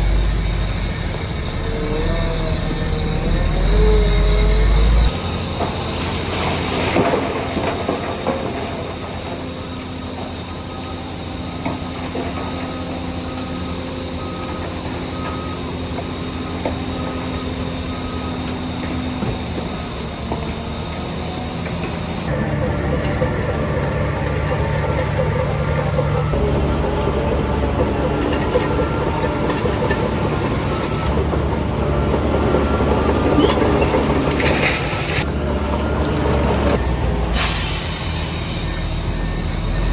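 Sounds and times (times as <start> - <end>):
heavy low rumble: 0.0 - 5.3
heavy machinery engine drone: 0.0 - 39.9.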